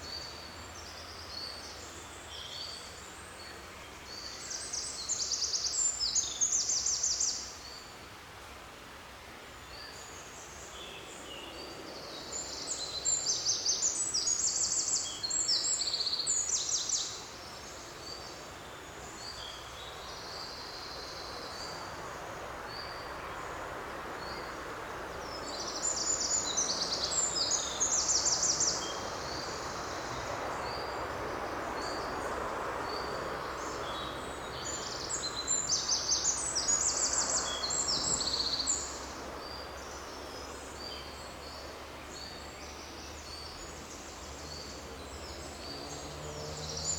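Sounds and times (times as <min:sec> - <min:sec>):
songbird singing: 0:00.0 - 0:07.9, 0:09.6 - 0:46.9
forest ambience hiss: 0:00.0 - 0:46.9.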